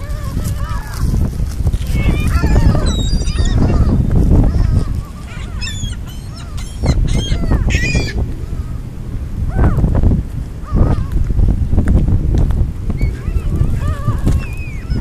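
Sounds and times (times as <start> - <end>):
flock of birds calling: 0.0 - 1.3, 1.9 - 8.9, 10.6 - 11.2, 13.0 - 15.0
steady low rumble: 0.0 - 15.0.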